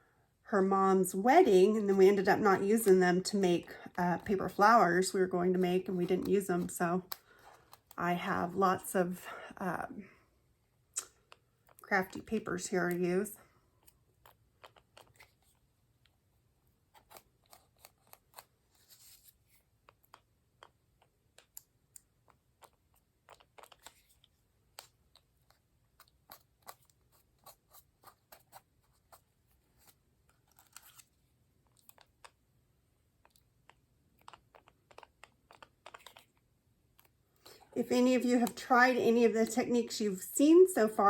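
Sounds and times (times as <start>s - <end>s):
paper rustling: 16.9s - 20.7s, 22.6s - 32.3s.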